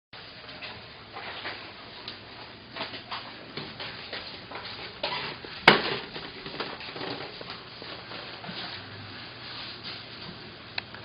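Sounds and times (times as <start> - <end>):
small household knocks and rustles: 0.2 - 10.6.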